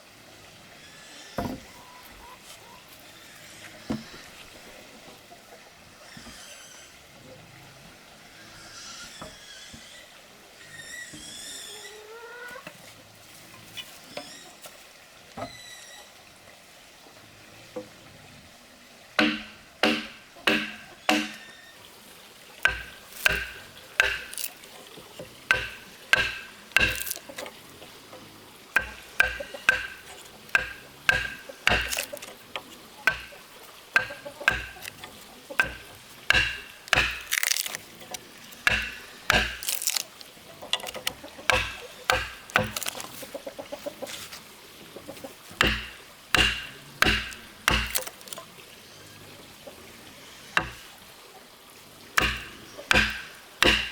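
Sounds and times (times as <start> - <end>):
hand tool striking wood: 19.2 - 21.4, 22.6 - 24.6, 25.5 - 27.4, 28.8 - 32.3, 33.1 - 33.4, 34.0 - 35.0, 35.6 - 37.8, 38.5 - 40.1, 40.7 - 43.2, 45.6 - 48.4, 50.6 - 50.9, 52.2 - 53.9.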